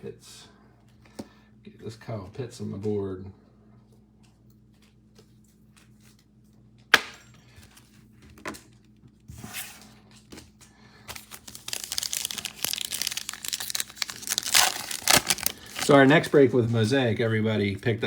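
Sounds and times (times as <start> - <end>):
packaging crinkling and tearing: 11.0 - 16.5
packaging click: 11.1 - 16.0.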